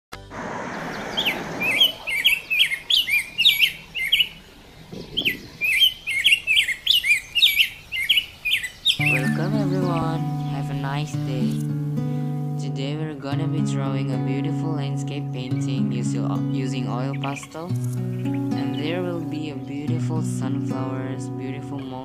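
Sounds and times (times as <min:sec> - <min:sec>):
steady rushing noise: 0:00.1 - 0:05.7
birds chirping: 0:00.2 - 0:12.9, 0:13.9 - 0:22.0.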